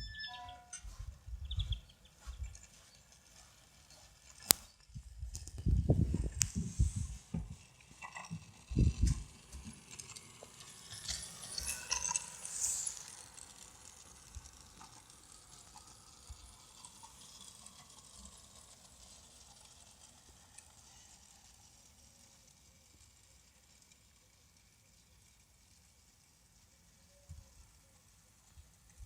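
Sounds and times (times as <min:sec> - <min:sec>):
model train running: 0:01.7 - 0:04.6, 0:05.6 - 0:29.0
model train clattering on track: 0:07.2 - 0:29.0.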